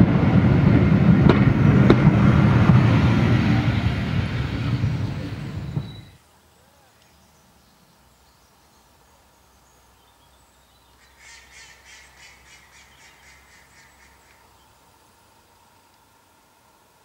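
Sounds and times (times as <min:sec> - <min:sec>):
bird harsh chattering call: 0:10.9 - 0:14.7.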